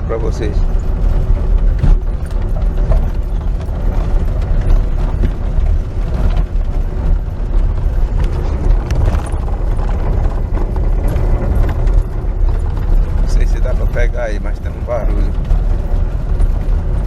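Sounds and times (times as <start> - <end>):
tyres rumbling over cobblestones: 0.0 - 17.0
rattling knocks under car: 1.4 - 6.5.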